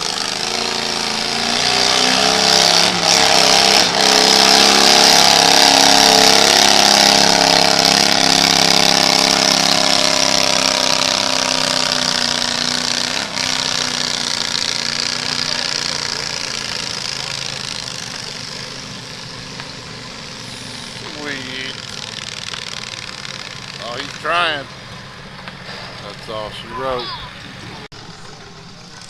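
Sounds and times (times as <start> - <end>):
tractor engine at high revs: 0.0 - 29.0.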